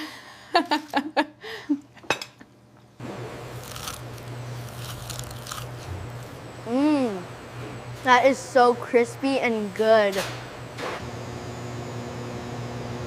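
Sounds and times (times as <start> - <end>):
biting crisp pastry: 3.6 - 5.9
crunchy chewing: 3.6 - 6.3.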